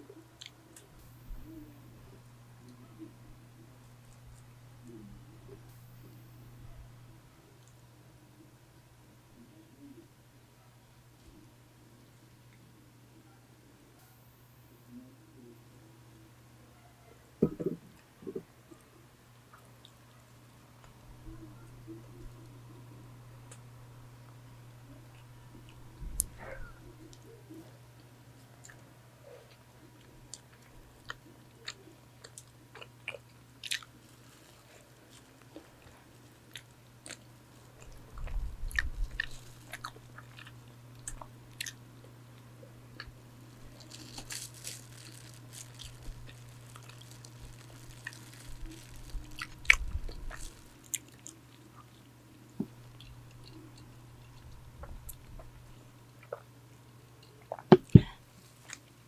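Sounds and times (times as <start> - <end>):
electric fan humming: 0.0 - 59.0
biting and chewing: 24.8 - 56.5.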